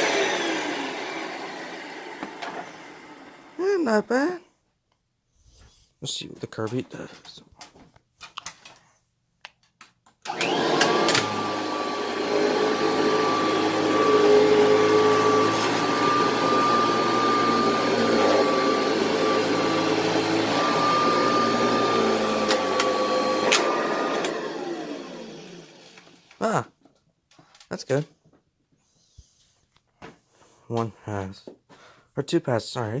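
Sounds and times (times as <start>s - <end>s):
vacuum cleaner motor whine: 0.0s - 3.8s, 10.3s - 26.4s.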